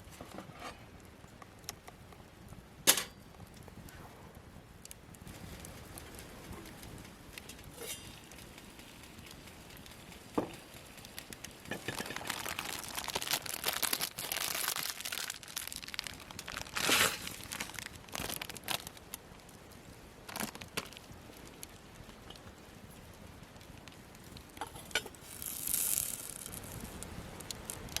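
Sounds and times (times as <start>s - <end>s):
crinkling and crumpling by hand: 4.9s - 28.0s.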